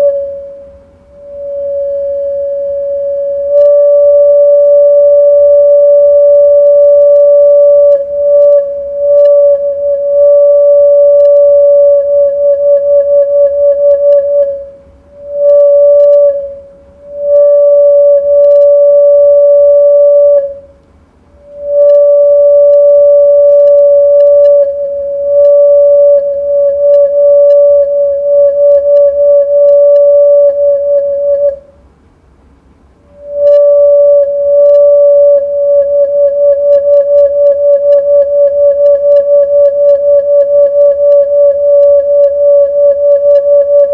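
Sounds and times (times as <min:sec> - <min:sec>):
electronic siren warbling: 0:21.5 - 0:31.6.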